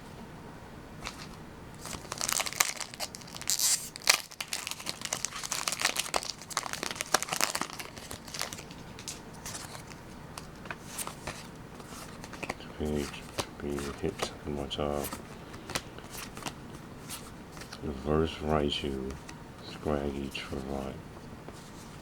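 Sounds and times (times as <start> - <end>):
foil wrapper tearing and crinkling: 1.0 - 11.3.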